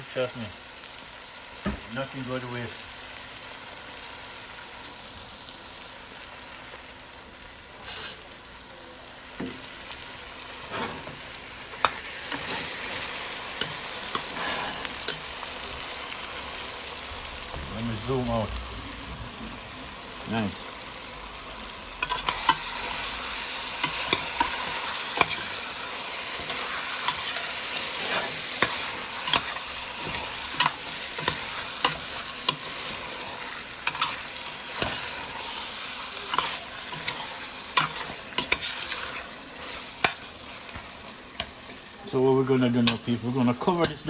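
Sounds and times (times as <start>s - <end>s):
chicken wings sizzling in a pot: 0.0s - 44.0s
spoon clacking against a pot: 22.0s - 25.6s, 26.2s - 41.6s.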